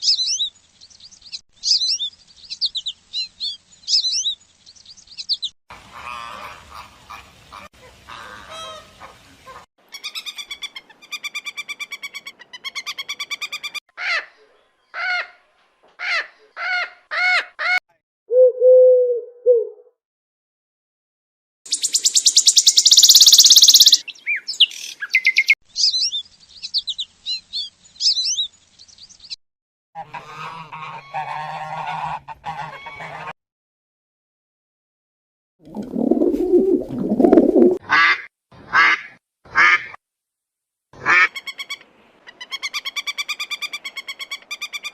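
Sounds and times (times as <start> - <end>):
high bird chirps: 0.0 - 5.6, 21.7 - 29.4
birds honking: 5.7 - 10.8, 30.0 - 33.3
low warbling bird note: 18.3 - 19.9, 35.7 - 37.8
loud rapid bird chatter: 21.7 - 24.0
buzzy bird calls: 21.7 - 29.4.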